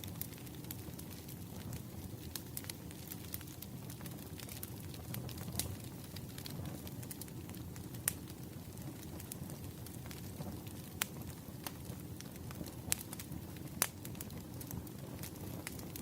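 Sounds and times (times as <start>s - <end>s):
fire pops and snaps: 0.0s - 16.0s
wood fire crackling: 0.0s - 16.0s.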